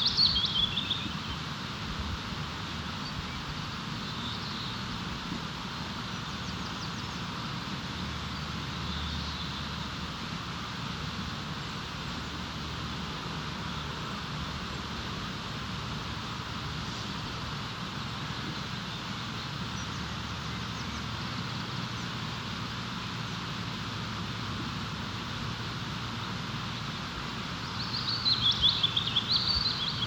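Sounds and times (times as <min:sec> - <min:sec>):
faint bird chirps: 0:00.0 - 0:01.4, 0:27.6 - 0:30.0.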